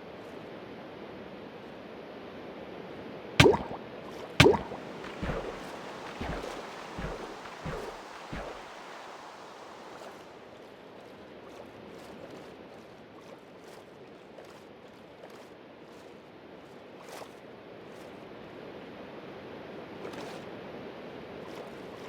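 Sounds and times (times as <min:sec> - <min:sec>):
low thumps: 0:03.4 - 0:08.6
rain: 0:04.7 - 0:10.6.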